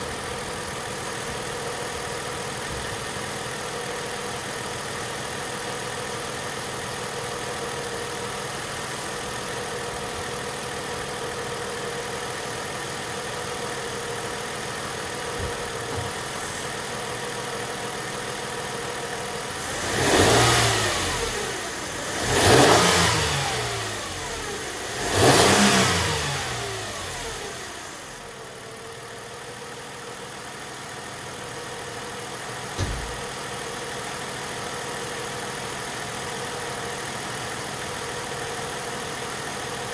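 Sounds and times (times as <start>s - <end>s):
car engine idling and revving: 0.0s - 39.9s.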